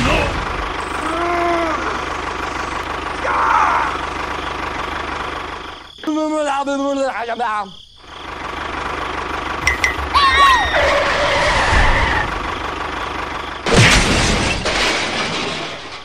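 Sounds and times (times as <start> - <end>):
toy tractor engine rumble: 0.4 - 6.0, 8.1 - 13.7
falling cartoon whistle: 10.1 - 12.3
loud crash: 13.6 - 16.0.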